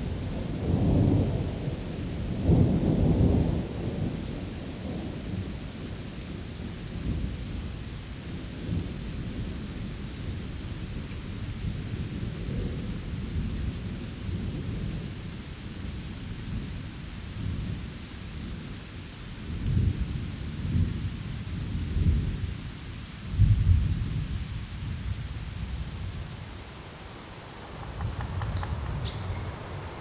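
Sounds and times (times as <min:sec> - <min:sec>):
low rolling thunder: 0:00.0 - 0:10.5, 0:23.3 - 0:30.0
steady rain: 0:00.0 - 0:30.0.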